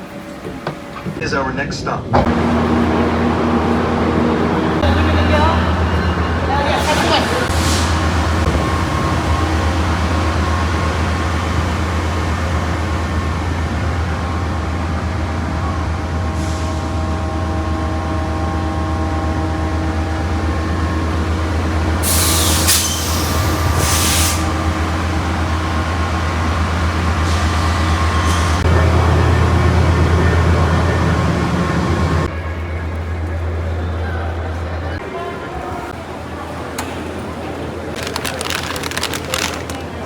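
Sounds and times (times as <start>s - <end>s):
machinery humming: 2.0s - 34.0s.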